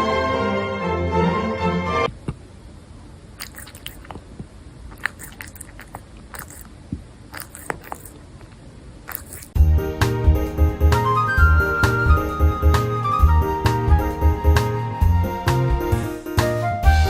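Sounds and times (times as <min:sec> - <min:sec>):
crisp chewing crunches: 0:03.4 - 0:09.6.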